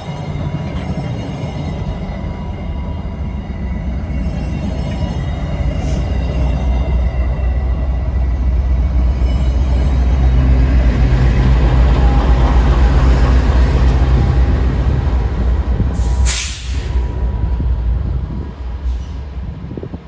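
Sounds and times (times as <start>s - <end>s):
diesel locomotive engine drone: 0.0s - 20.0s
wheels rumbling on rail: 0.0s - 20.0s
loud hiss: 16.0s - 17.0s.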